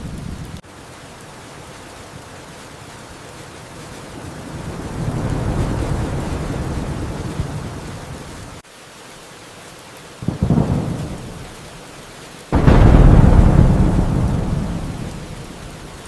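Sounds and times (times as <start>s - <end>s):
rain: 0.0s - 16.0s
rolling thunder: 1.2s - 8.6s, 10.3s - 11.7s, 12.6s - 16.0s.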